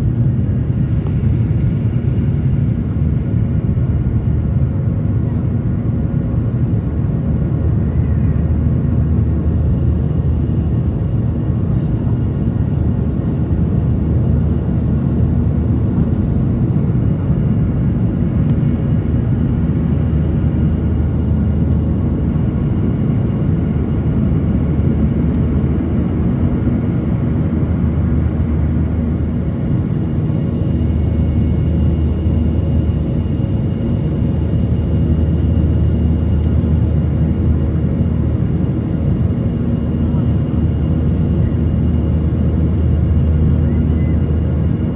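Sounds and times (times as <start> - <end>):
airliner engines and airflow drone: 0.0 - 44.9.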